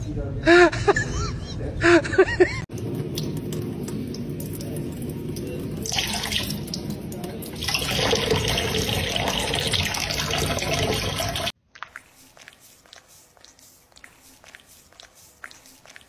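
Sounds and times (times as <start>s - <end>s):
water running from a tap: 2.7s - 11.6s.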